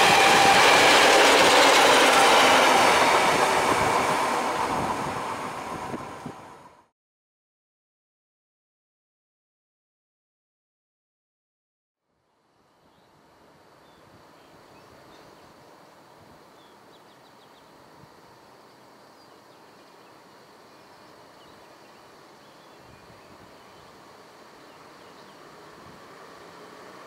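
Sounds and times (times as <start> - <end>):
distant electric train approaching: 0.0 - 6.9, 23.5 - 27.0.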